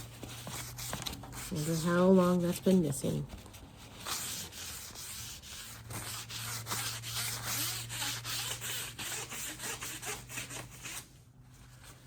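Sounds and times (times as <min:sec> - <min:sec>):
wiping strokes on metal: 0:03.7 - 0:11.0.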